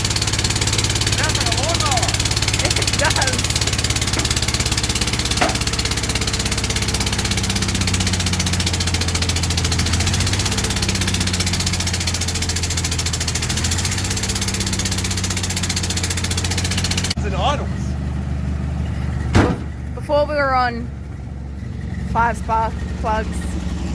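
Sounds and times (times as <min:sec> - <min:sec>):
truck engine idling: 0:00.0 - 0:23.9.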